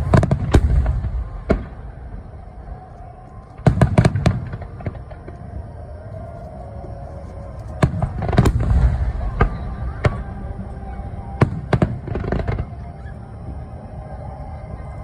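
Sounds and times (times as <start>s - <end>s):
fireworks bursting with bangs: 0.0s - 2.8s, 3.5s - 5.4s, 7.7s - 13.1s
low rumbling: 0.0s - 15.0s.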